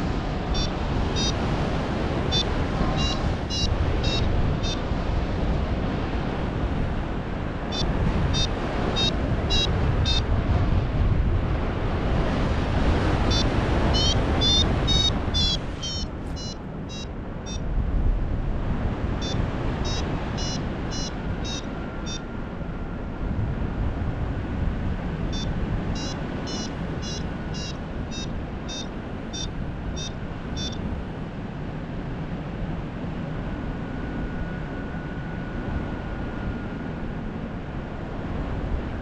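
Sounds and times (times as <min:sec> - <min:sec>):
wind on microphone: 0:00.0 - 0:39.0
variometer beeping: 0:00.5 - 0:01.4, 0:02.3 - 0:04.8, 0:07.7 - 0:10.2, 0:13.2 - 0:17.6, 0:19.2 - 0:22.3, 0:25.3 - 0:30.8.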